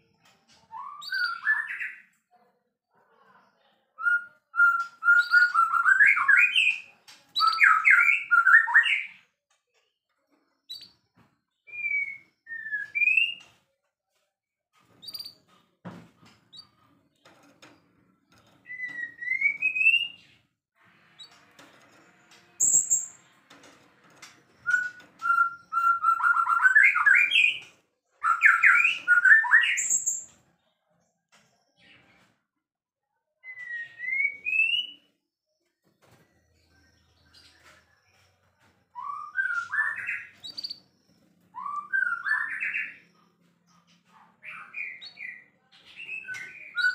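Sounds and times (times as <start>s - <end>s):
bird singing whistled notes: 24.6s - 27.6s, 41.5s - 43.0s.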